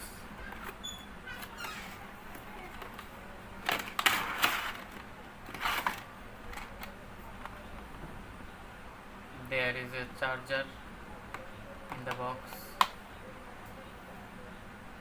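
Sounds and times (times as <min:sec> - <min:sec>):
packaging rustling and scraping: 0:02.6 - 0:06.9.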